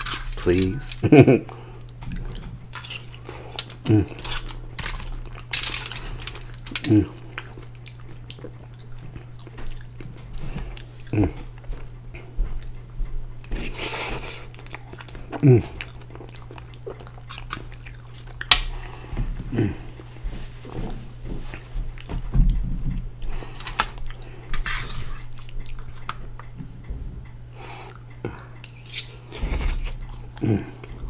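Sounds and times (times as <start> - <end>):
chewing and mouth sounds: 0.0 - 20.3, 23.2 - 26.6, 27.6 - 31.0
steady low hum: 0.0 - 31.0
metal fork clicking on foil tray: 2.8 - 7.0.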